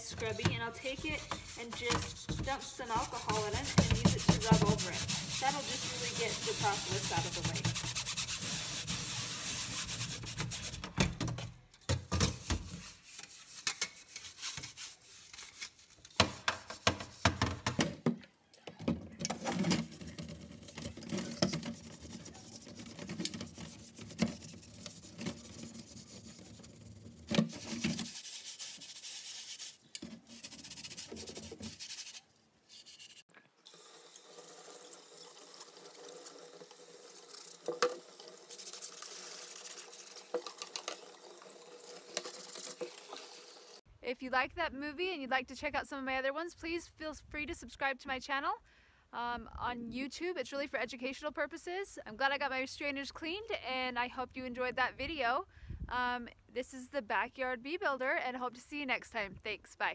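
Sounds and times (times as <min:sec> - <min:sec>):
scrub pad scratching metal mesh: 0:00.3 - 0:11.0, 0:19.3 - 0:33.2
tap water pouring: 0:33.6 - 0:43.8.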